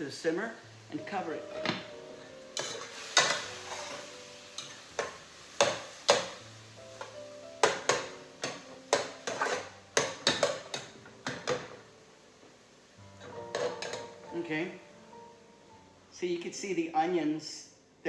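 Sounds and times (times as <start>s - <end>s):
soft background music: 0.0s - 18.0s
utensil clinking against pot: 7.6s - 11.8s, 13.2s - 14.2s.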